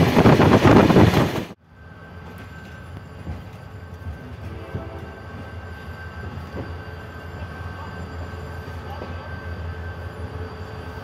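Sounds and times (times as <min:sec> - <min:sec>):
diesel train rumble: 0:00.0 - 0:11.0.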